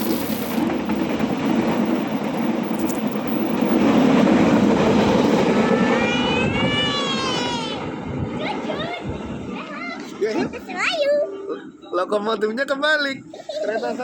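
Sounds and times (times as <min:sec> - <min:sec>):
train wheels rumbling on rails: 0:00.0 - 0:10.7.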